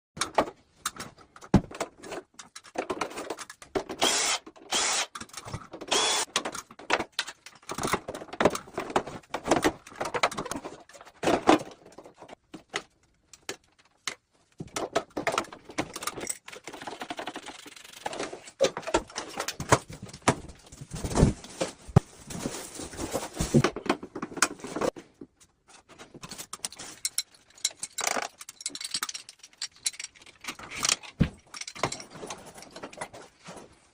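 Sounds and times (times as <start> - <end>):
metallic clinks and rattles of tools: 14.6 - 19.7, 25.7 - 33.5.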